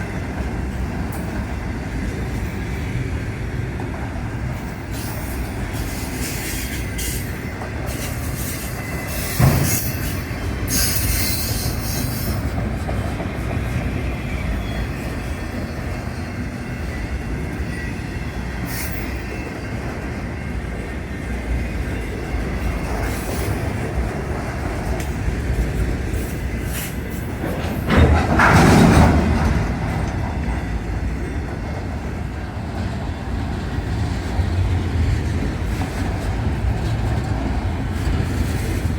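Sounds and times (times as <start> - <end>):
train rumbling on rails: 0.0 - 38.9
faint wheel squeal: 16.9 - 19.8.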